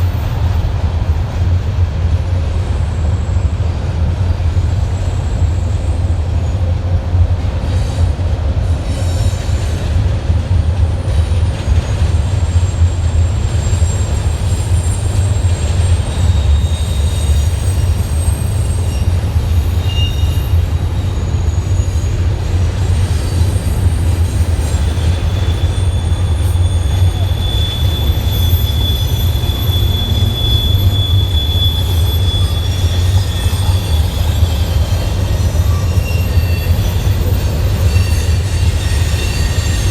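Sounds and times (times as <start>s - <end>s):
freight train rumbling: 0.0s - 39.9s
wheel squeal: 11.0s - 39.9s.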